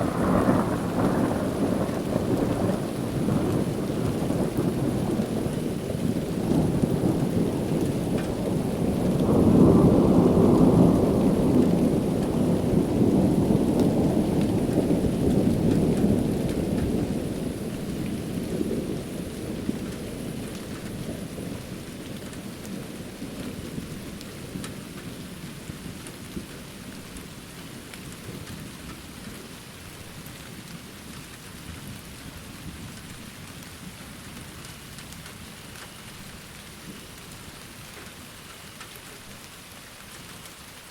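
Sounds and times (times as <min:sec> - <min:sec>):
thunder rumbling: 0:00.0 - 0:27.2
rain falling on surfaces: 0:00.0 - 0:40.9.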